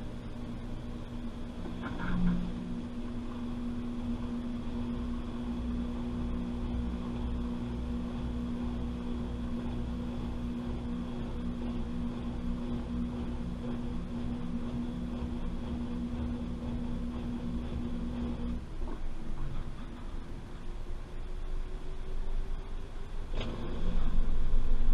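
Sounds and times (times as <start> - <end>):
low rumble: 0.0 - 24.9
washing machine motor hum: 0.0 - 24.9.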